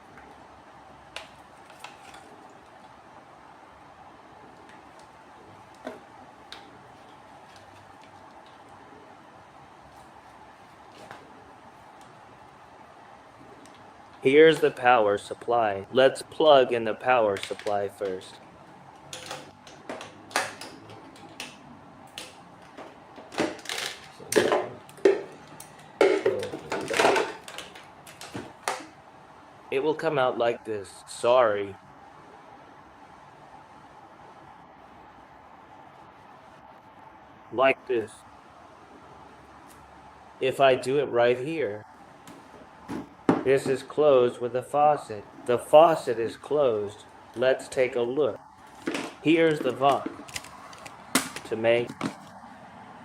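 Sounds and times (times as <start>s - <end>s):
faint steady hum: 0.0s - 53.0s
equipment parts clicking: 48.8s - 52.4s.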